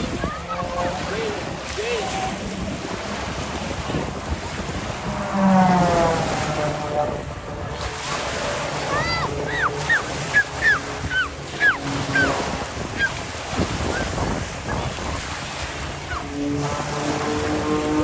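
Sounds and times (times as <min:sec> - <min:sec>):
engine drone: 0:00.0 - 0:18.0
surf: 0:00.0 - 0:18.0
wind: 0:00.0 - 0:18.0
birds downward-sliding calls: 0:08.8 - 0:14.8, 0:16.0 - 0:16.4.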